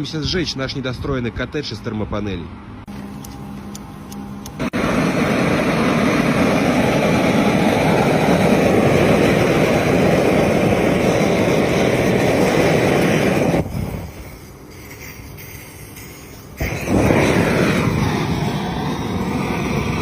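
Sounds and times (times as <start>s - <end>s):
gas torch flame blowing: 4.4s - 20.0s.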